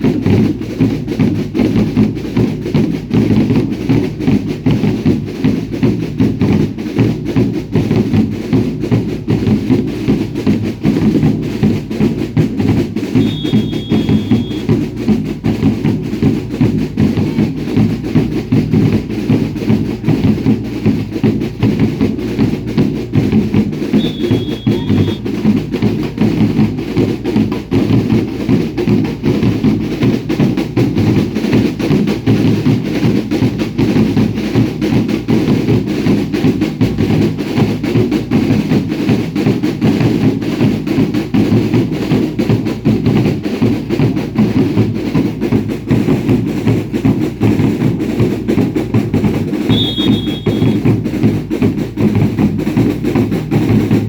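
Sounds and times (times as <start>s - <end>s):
bass and snare drums beating: 0.0s - 54.0s
short high whistle: 13.2s - 14.7s, 24.0s - 25.3s, 49.7s - 50.9s.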